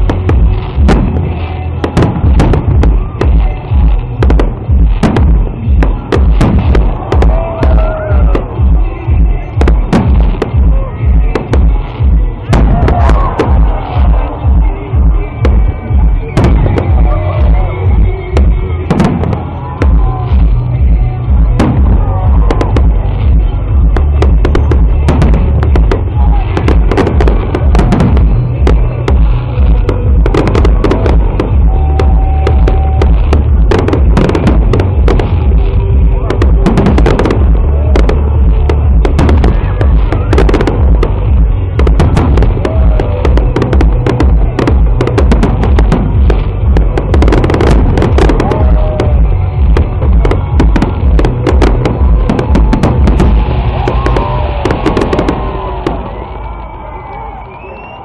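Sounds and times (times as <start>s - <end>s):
loud music with heavy bass beat: 0.0s - 56.8s
fireworks banging and cracking: 0.0s - 58.0s.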